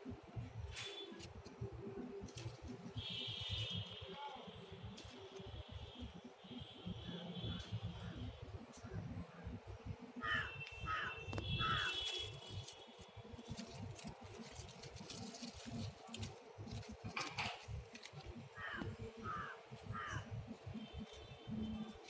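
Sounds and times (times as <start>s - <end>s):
crow cawing: 10.2s - 12.2s, 18.5s - 20.3s.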